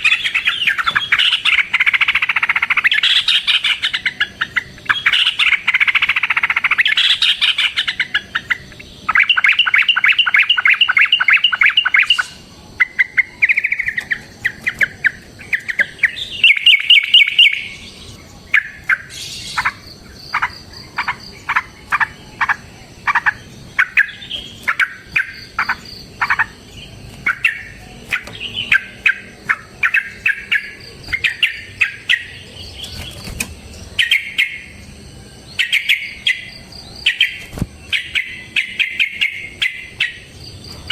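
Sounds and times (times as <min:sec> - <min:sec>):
sharp downward bird notes: 0:00.0 - 0:19.5
bird singing fast trills: 0:00.0 - 0:40.9.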